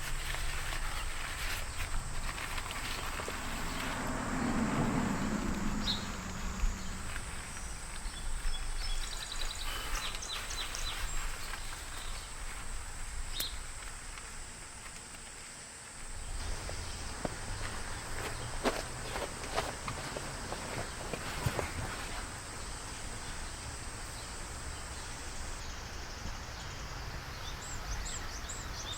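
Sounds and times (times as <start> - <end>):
low rustling: 0.0 - 13.3
insect drone: 0.0 - 28.9.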